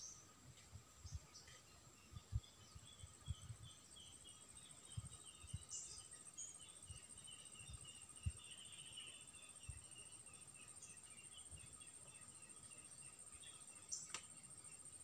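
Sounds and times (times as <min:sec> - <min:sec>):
soft low thumps: 0:02.1 - 0:04.0.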